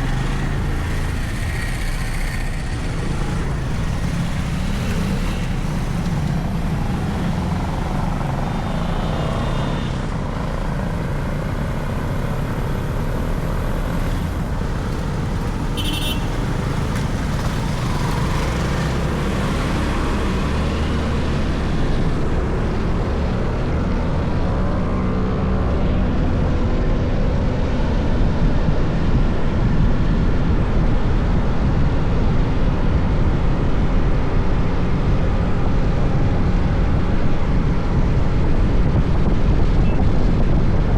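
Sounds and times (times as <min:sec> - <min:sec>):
motorcycle engine running: 0:00.0 - 0:23.1
wind and road noise: 0:00.0 - 0:40.9.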